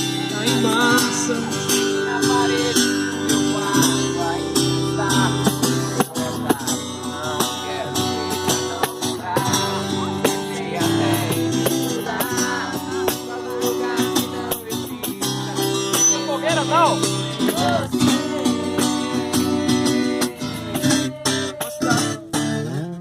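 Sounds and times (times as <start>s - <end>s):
group singing: 0.0s - 22.6s
acoustic guitar strumming: 0.0s - 23.0s.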